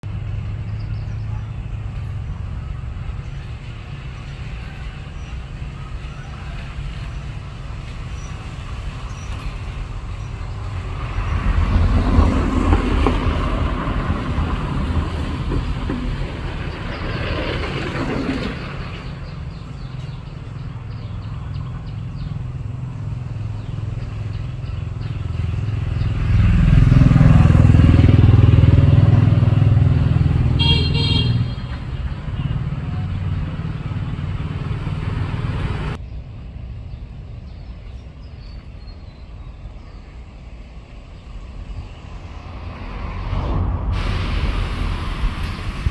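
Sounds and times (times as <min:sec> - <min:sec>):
motor engine humming: 0:19.0 - 0:36.0.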